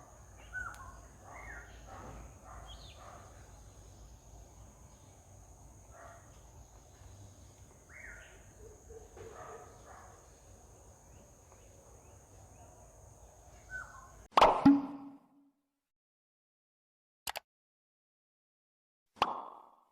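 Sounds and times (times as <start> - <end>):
bird chirps: 0.0 - 14.3.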